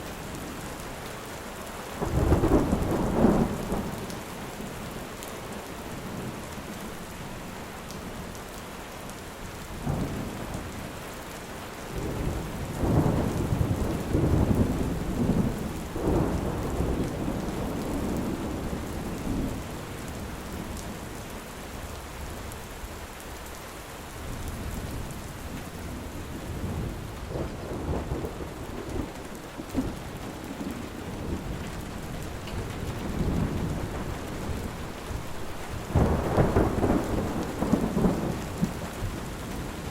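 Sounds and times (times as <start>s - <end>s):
steady rain falling: 0.0s - 39.9s
thunder rumbling: 12.0s - 19.6s, 24.6s - 39.9s.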